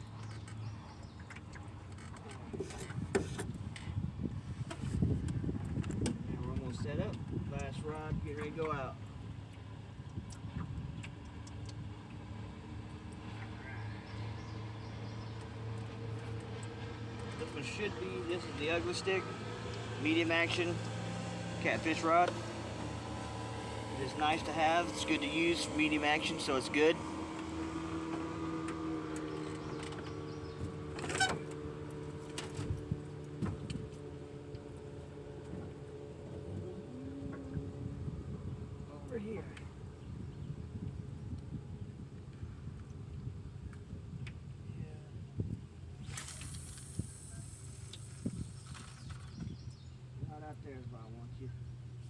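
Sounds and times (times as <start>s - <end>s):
low engine hum: 0.0s - 52.0s
short rattle: 46.0s - 49.6s.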